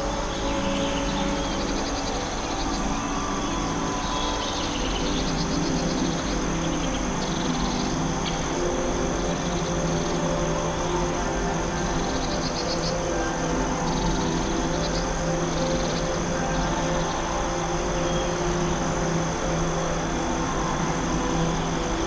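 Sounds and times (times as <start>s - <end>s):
frogs calling: 0.0s - 22.0s
insects humming: 0.0s - 22.0s
soft ambient music: 0.0s - 22.0s.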